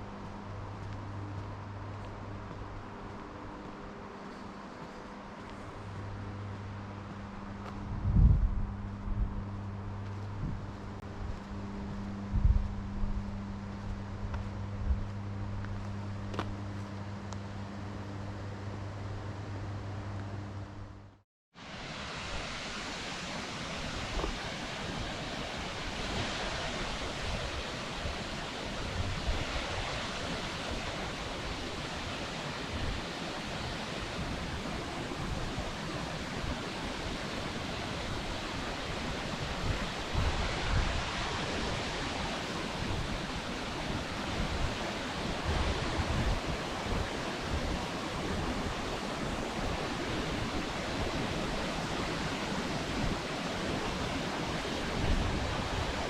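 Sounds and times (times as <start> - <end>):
wind buffeting microphone: 7.7 - 9.7, 23.7 - 56.0
waterfall rushing: 21.6 - 56.0.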